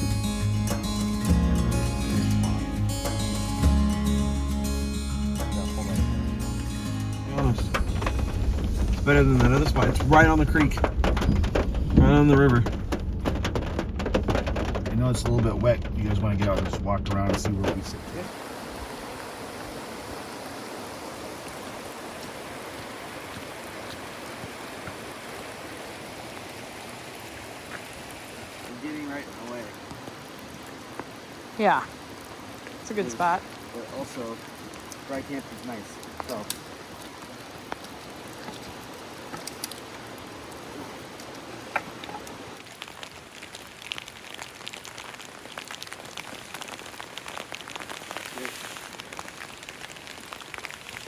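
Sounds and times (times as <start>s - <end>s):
river flowing: 0.0s - 10.4s, 17.9s - 51.0s
rain falling: 0.0s - 51.0s
drops ticking on surfaces: 7.5s - 18.0s.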